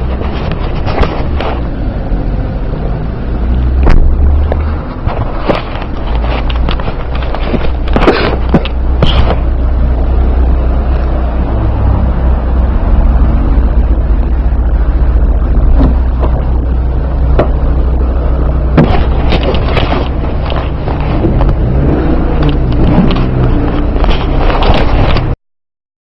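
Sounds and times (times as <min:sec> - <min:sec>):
sharp clicks and knocks: 0:00.0 - 0:01.7, 0:03.8 - 0:09.6, 0:15.5 - 0:25.4
vehicle rumble from inside: 0:00.0 - 0:25.4.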